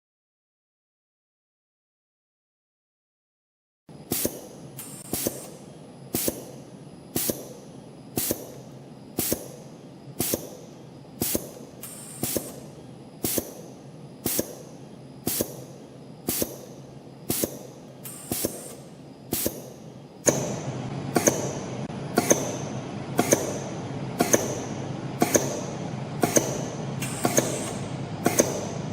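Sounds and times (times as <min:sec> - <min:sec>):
coiling machine running: 0:03.9 - 0:28.9
spring cutter clicking: 0:23.2 - 0:28.8.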